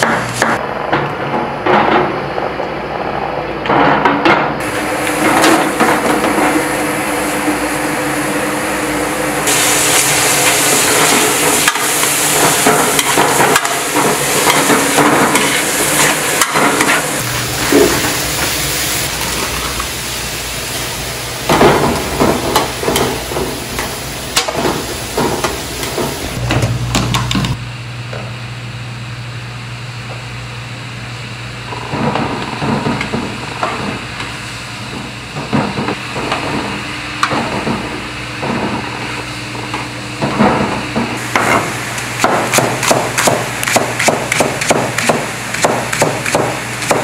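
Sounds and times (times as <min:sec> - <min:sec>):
onions sizzling in oil: 0:04.6 - 0:26.4, 0:41.2 - 0:47.0
spatula scraping wok: 0:09.5 - 0:19.8.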